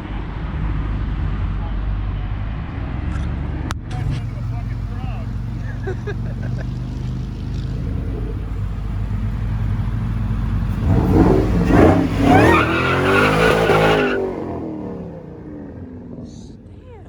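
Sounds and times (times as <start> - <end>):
car engine idling and revving: 3.9 - 17.0.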